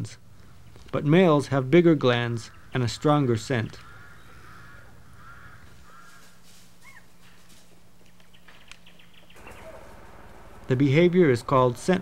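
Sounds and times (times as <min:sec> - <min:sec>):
faint bird calls: 0:03.8 - 0:10.8
low steady hum: 0:07.4 - 0:12.0.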